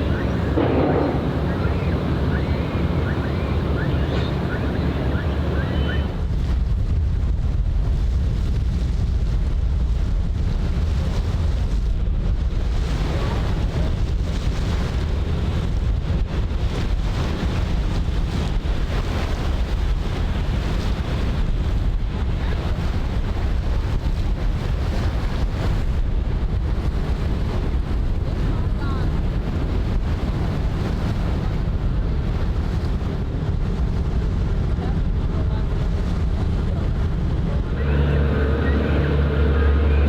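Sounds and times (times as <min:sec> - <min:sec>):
water washing: 0:00.0 - 0:06.2, 0:33.0 - 0:40.0
wind buffeting microphone: 0:00.0 - 0:40.0.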